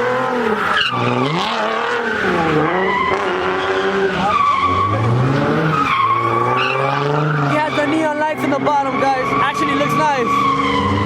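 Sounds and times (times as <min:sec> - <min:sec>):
car engine revving: 0:00.0 - 0:11.0
tyres squealing and skidding: 0:00.0 - 0:11.0.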